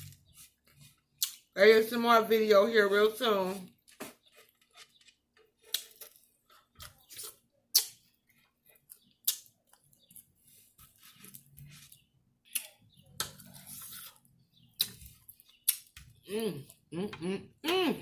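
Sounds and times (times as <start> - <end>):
chewing and wet mouth noises: 0.0 - 1.6, 3.7 - 16.9
mouth clicks and smacks: 7.1 - 8.2, 8.9 - 9.8, 15.6 - 17.8.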